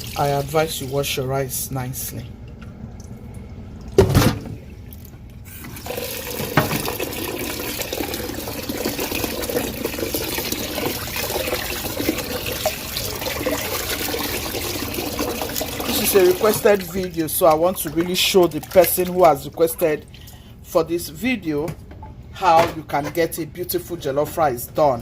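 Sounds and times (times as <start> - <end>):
tap running water into bowl: 5.6 - 18.8.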